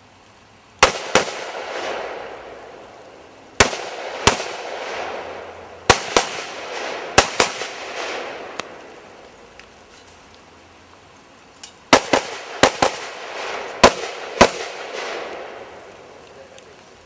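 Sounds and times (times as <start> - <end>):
rifle shots: 0.8 - 2.7, 3.6 - 8.9, 11.9 - 15.8
long rolling echo: 0.8 - 9.8, 11.9 - 17.0.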